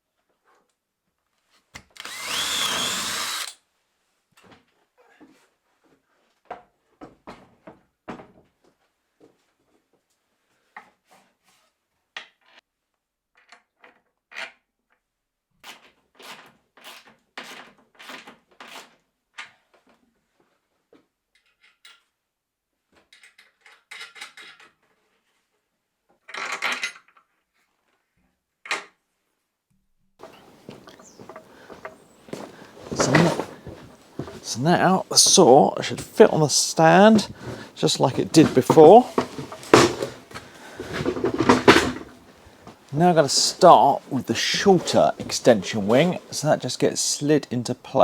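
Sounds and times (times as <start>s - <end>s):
tools and hardware clattering: 30.2s - 34.6s, 35.9s - 42.6s.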